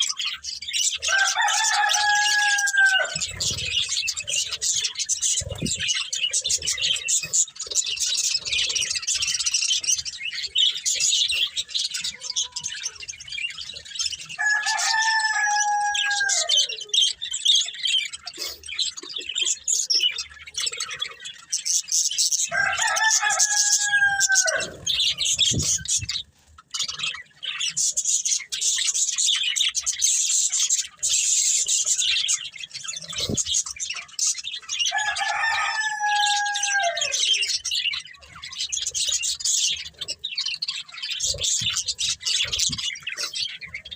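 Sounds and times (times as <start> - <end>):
budgerigars chattering: 0.0 - 43.9.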